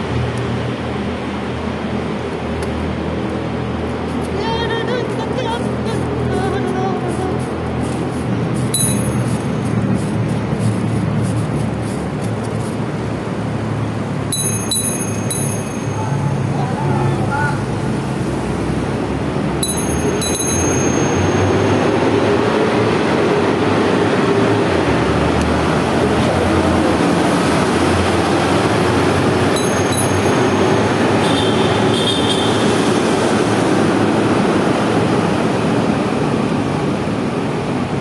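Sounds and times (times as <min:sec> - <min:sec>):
wind and road noise: 0:00.0 - 0:38.0.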